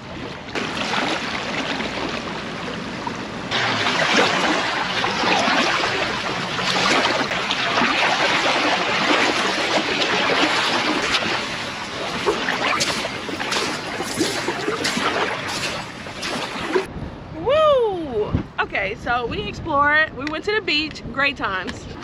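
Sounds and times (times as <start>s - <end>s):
water lapping at shoreline: 0.0s - 16.9s.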